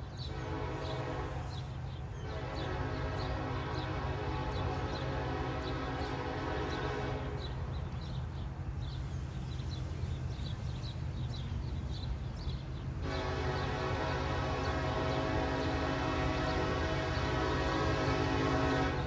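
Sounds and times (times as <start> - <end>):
passing train rumble: 0.0 - 19.0
locomotive air horn chord: 0.2 - 7.7, 13.0 - 19.0.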